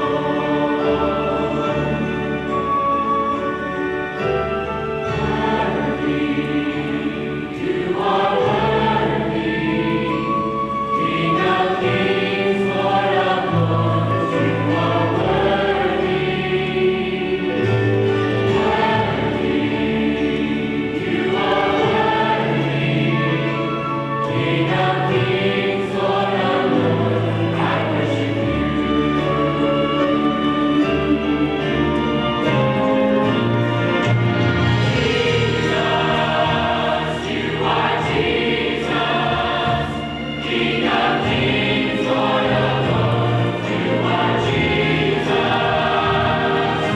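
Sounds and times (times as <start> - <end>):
choir singing: 0.0 - 46.9.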